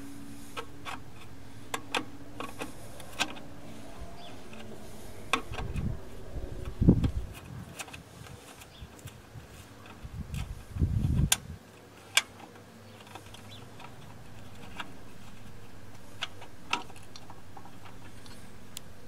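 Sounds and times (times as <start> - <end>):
low handling rumble: 0.0 - 7.8, 13.1 - 19.0
faint steady hum: 0.0 - 19.0.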